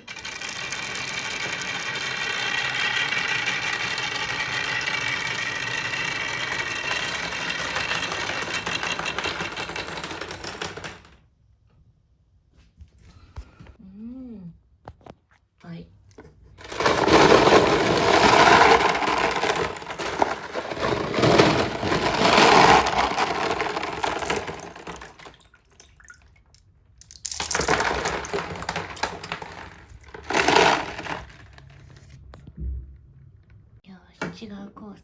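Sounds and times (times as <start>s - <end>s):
marbles rattling: 0.0s - 11.2s, 16.6s - 25.6s, 27.0s - 31.7s.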